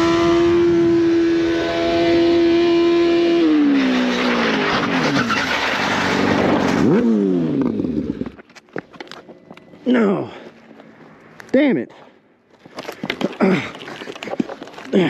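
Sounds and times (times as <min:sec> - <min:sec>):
motorcycle engine revving: 0:00.0 - 0:08.5
skidding and scraping: 0:03.0 - 0:15.0.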